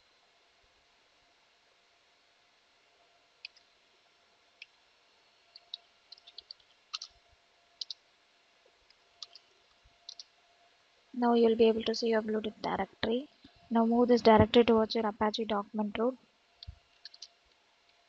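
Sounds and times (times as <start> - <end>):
computer clicks: 5.5 - 7.2, 7.8 - 8.0, 9.2 - 9.5, 10.1 - 10.3, 16.6 - 17.4.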